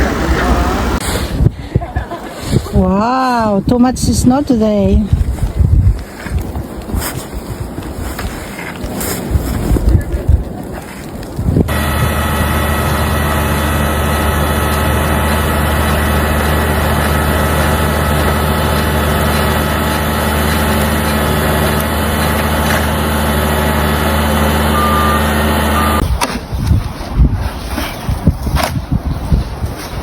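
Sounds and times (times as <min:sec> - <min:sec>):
heavy vehicle engine idling: 0:11.7 - 0:26.0.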